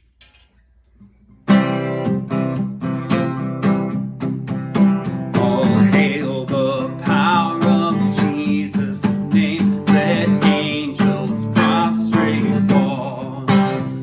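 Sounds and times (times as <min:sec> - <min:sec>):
acoustic guitar strumming: 0:01.0 - 0:14.0
person singing a hymn: 0:05.4 - 0:14.0.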